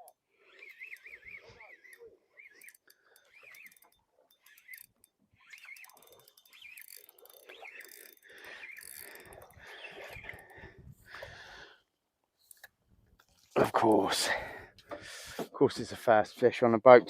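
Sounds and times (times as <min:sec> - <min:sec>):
fishing reel clicking and whirring: 0:00.0 - 0:11.4.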